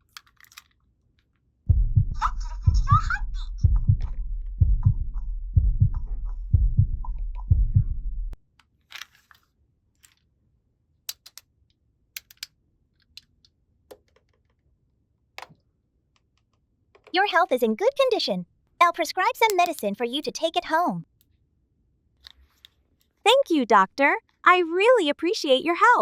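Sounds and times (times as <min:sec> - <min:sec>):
heartbeat thumps: 0:01.7 - 0:08.4
low hum: 0:01.7 - 0:08.4.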